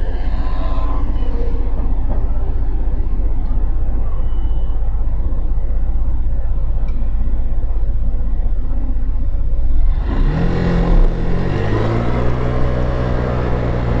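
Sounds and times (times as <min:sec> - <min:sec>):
motorcycle engine running: 0:05.4 - 0:14.0.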